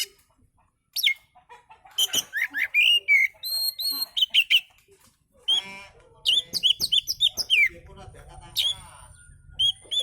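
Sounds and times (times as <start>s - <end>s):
bird singing whistles and chirps: 8.6s - 10.0s.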